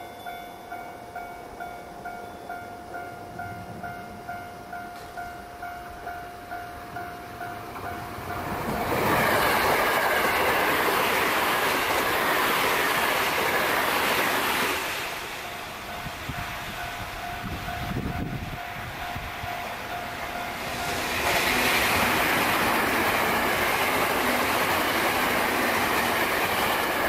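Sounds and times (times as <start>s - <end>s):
electric train passing at speed: 0.0s - 27.0s
level-crossing alarm dinging: 0.0s - 27.0s
train rail-joint clatter: 4.8s - 6.2s, 6.9s - 27.0s.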